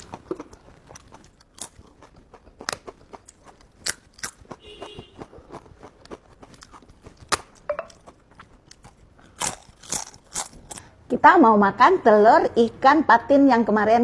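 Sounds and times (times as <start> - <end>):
quiet chewing: 0.0 - 10.9
crisp bites and crunches: 8.7 - 10.9.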